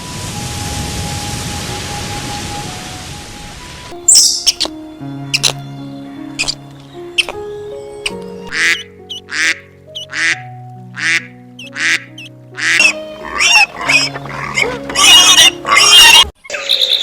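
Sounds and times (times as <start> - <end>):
background music: 0.2 - 16.4
duck quacking: 8.5 - 17.0.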